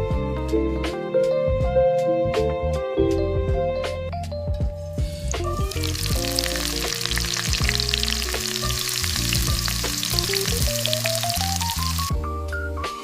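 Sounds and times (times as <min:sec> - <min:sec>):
soft background music: 0:00.0 - 0:13.0
food sizzling in a hot pan: 0:05.0 - 0:12.1.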